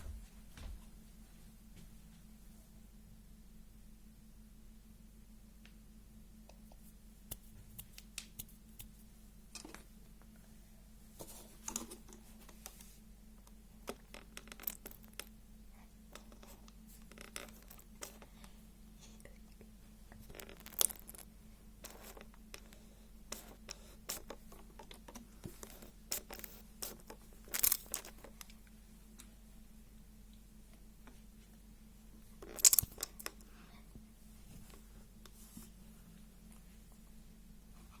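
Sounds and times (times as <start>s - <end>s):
faint steady hum: 0.0s - 38.0s
light rustling and scratching: 11.1s - 13.0s.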